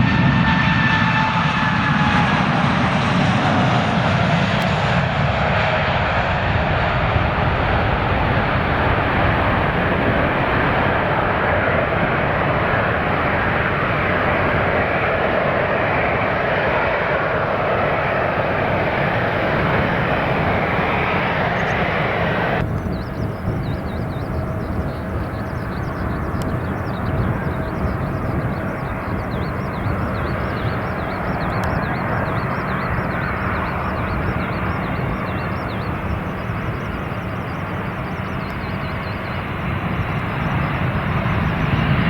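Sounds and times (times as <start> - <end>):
airliner engines at high power: 0.0 - 42.0.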